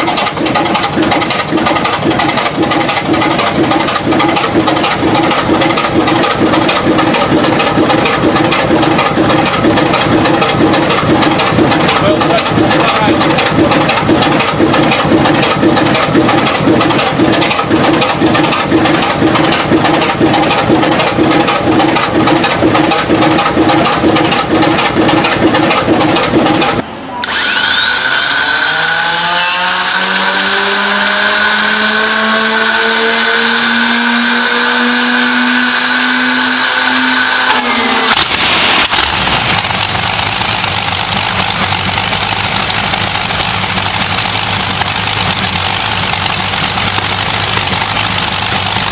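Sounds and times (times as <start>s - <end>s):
engine running steadily: 0.0s - 27.4s, 28.3s - 48.9s
engine spooling up whine: 0.0s - 48.9s
large engine running: 0.0s - 48.9s.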